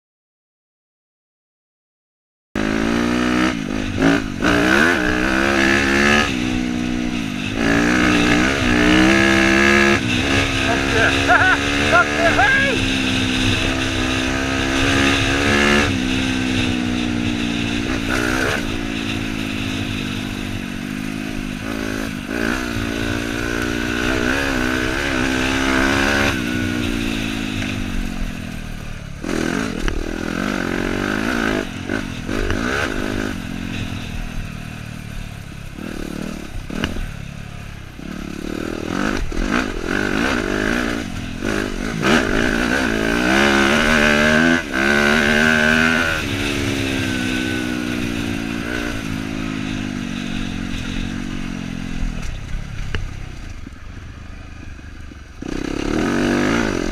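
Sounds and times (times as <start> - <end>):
dirt bike engine revving: 2.6 - 53.8, 54.6 - 56.9.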